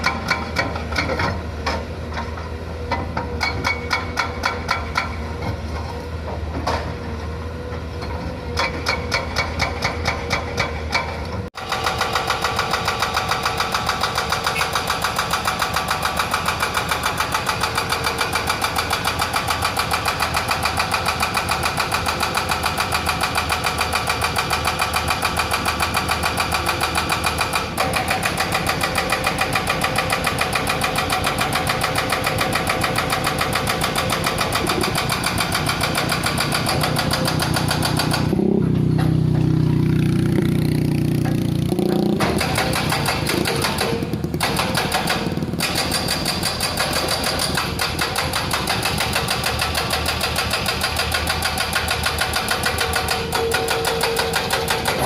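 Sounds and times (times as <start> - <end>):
diesel engine running: 0.0 - 55.0
hydraulic breaker hammering: 8.6 - 39.6, 41.1 - 55.0.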